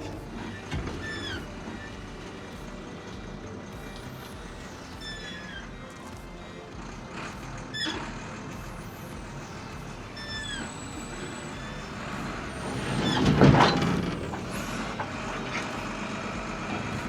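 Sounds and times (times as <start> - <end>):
disc brakes squealing: 0.0 - 17.0
wheel loader running: 0.0 - 17.0.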